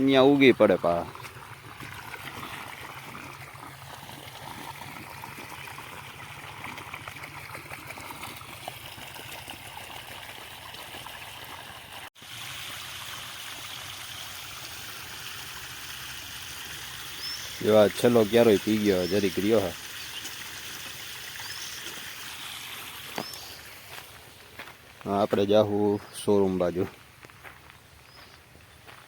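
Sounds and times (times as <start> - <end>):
water flowing in a channel: 0.0 - 24.8.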